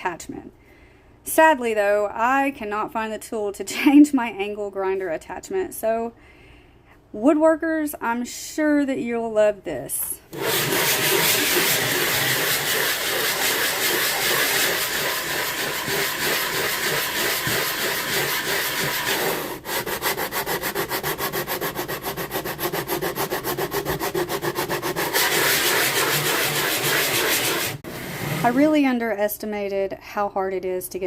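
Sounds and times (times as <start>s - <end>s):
coarse sanding of wood: 10.3s - 28.7s.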